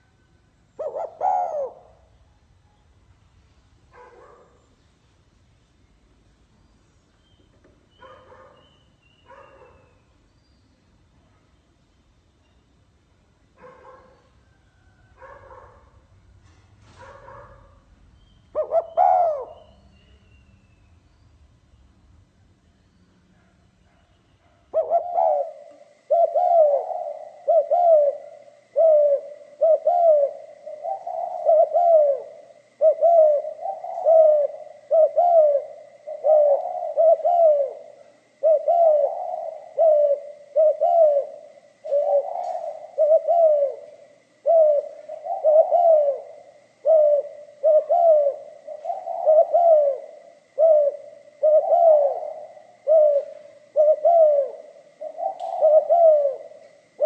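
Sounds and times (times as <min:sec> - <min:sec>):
dove cooing: 0:00.8 - 0:02.2, 0:18.5 - 0:20.2, 0:24.7 - 0:57.0.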